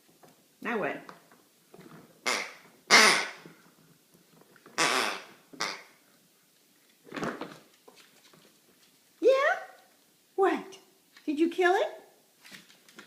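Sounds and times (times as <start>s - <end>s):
toy duck quacking: 2.2s - 3.4s.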